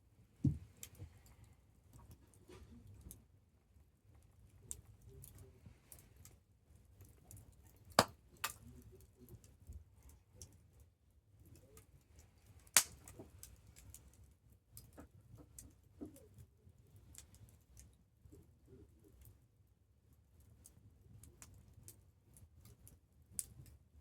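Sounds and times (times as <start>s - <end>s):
campfire crackling: 12.4s - 15.6s.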